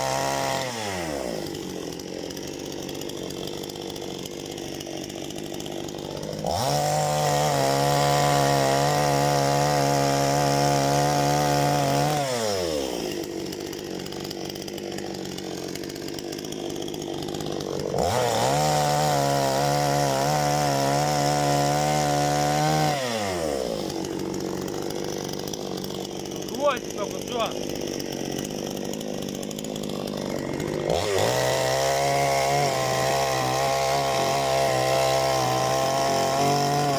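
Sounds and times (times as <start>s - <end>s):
chainsaw revving and idling: 0.0s - 36.9s.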